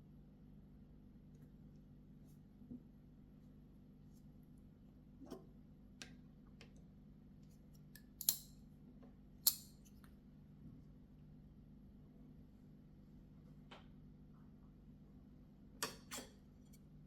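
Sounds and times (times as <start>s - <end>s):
knife blade metallic snaps: 8.0s - 8.6s, 9.4s - 9.9s.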